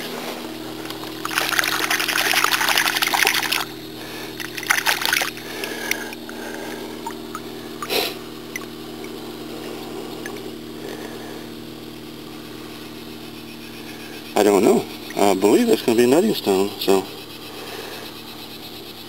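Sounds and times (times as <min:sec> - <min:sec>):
steady low hum: 0:00.0 - 0:19.0
water splashing and trickling: 0:00.9 - 0:06.2.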